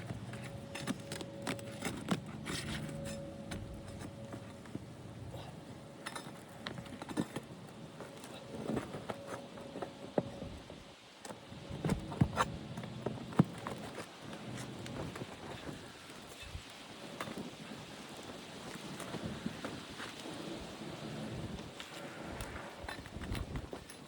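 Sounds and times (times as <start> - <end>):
taps and scrapes on shingle roof: 0.0 - 17.6.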